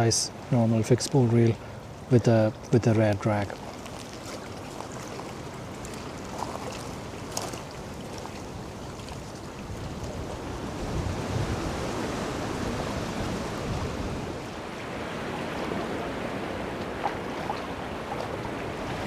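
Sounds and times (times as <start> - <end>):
wind blowing over microphone: 8.6 - 19.0.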